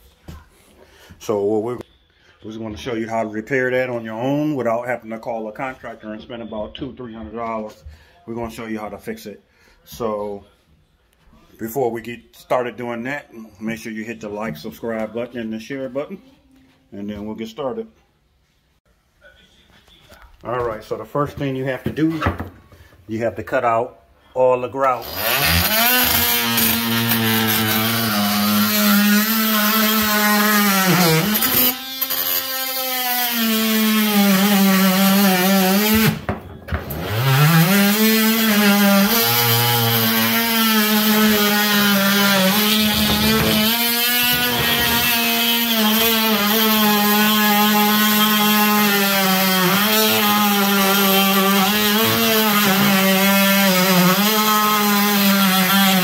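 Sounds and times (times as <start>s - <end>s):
power tool grinding grout: 24.8s - 56.0s.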